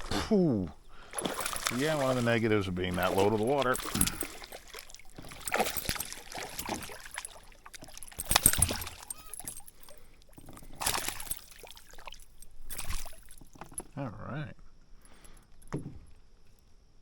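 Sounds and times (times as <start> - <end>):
water splashing beside a kayak: 0.9 - 13.8.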